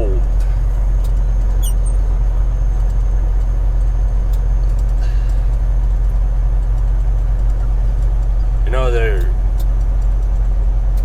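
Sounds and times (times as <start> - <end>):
road noise: 0.0 - 11.0
truck engine drone: 0.0 - 11.0
faint high chirp: 1.6 - 2.0.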